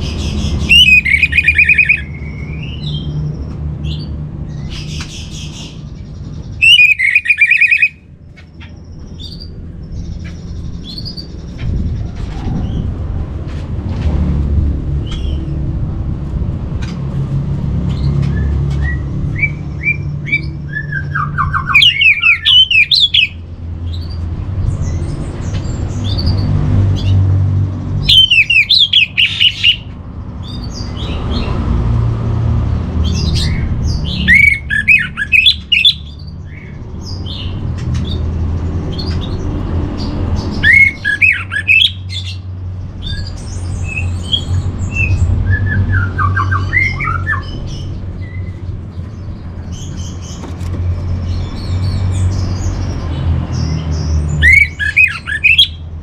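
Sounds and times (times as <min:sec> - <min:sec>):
soft bird calls: 0:00.0 - 0:12.9
thrush singing whistled phrases: 0:06.6 - 0:08.0.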